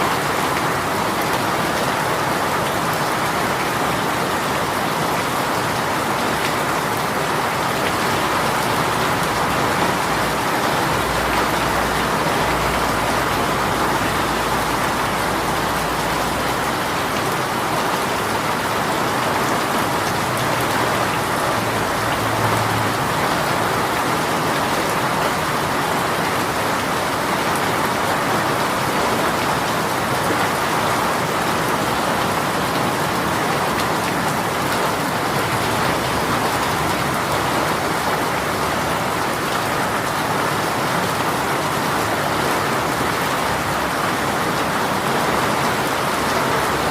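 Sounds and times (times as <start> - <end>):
heavy rain spattering: 0.0 - 46.9.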